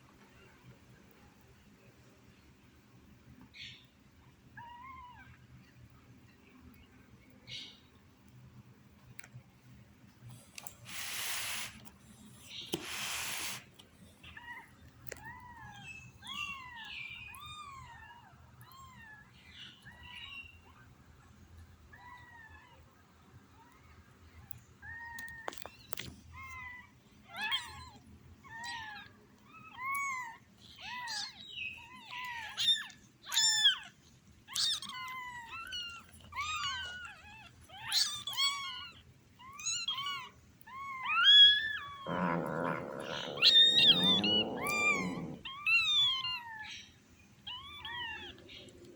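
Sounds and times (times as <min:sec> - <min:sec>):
kittens mewing: 0:34.5 - 0:46.7.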